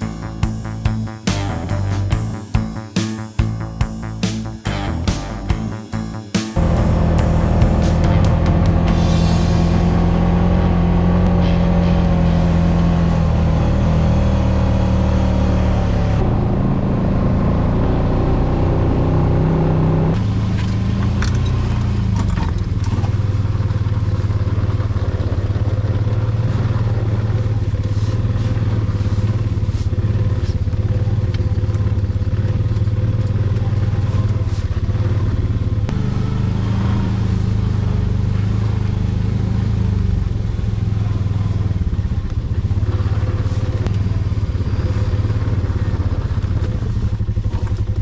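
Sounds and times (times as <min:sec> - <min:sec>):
atv engine running: 0:00.0 - 0:48.0
engine clatter: 0:04.6 - 0:48.0.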